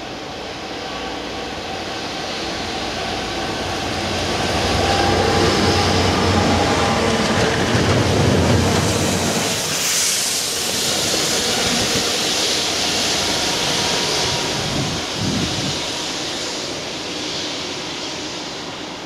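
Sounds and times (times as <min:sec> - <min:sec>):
train wheels rumbling on rails: 0:00.0 - 0:19.0
high water jet hiss: 0:08.1 - 0:19.0.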